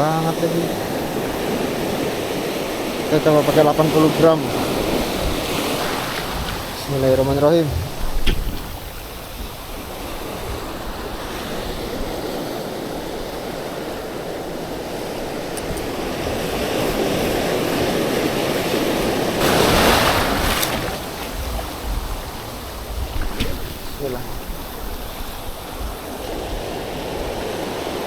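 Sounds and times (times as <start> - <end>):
surf washing onto beach: 0.0 - 28.0
wind buffeting microphone: 0.0 - 28.0
wave breaking loudly: 19.1 - 24.8.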